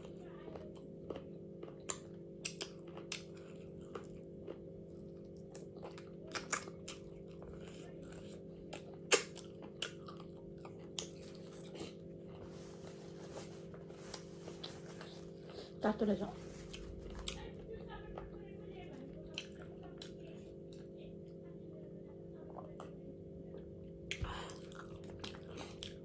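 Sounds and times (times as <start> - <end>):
person chewing crunchy food: 0.0 - 15.8, 16.4 - 18.3, 19.3 - 20.9, 24.1 - 26.0
low hum: 10.1 - 25.4.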